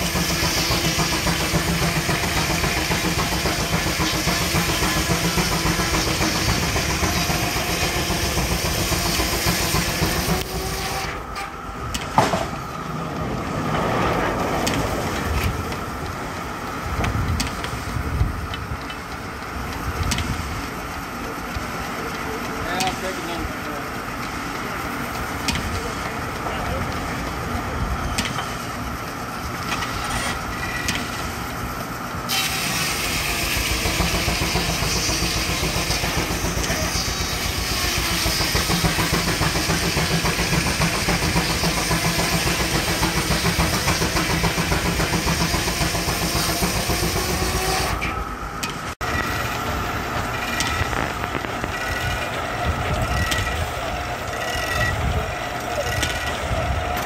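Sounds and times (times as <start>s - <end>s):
steam sawmill machinery running: 0.0s - 57.0s
saw blade cutting log: 29.8s - 31.0s.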